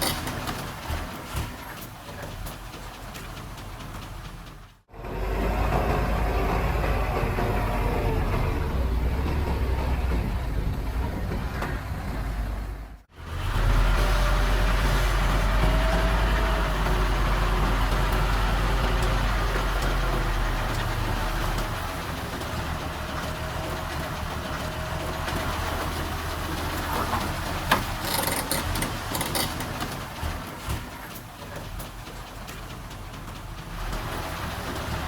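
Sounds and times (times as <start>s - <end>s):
diesel engine rumbling: 0.0s - 35.0s.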